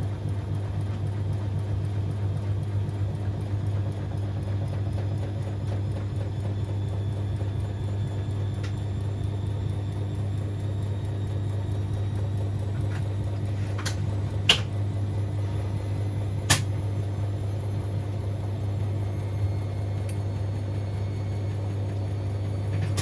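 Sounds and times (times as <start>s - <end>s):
washing machine humming: 0.0s - 23.0s.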